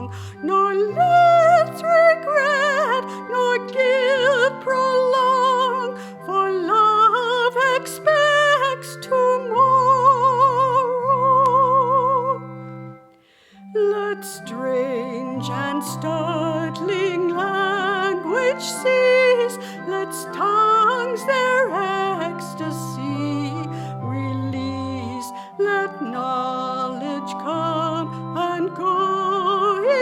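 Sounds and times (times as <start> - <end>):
woman singing a hymn: 0.0 - 12.9, 13.6 - 30.0
sustained keyboard chords: 0.0 - 30.0.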